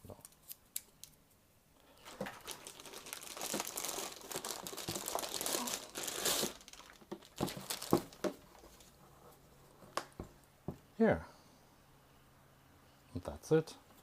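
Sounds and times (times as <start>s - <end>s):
packaging crinkling and rustling: 1.9s - 9.0s.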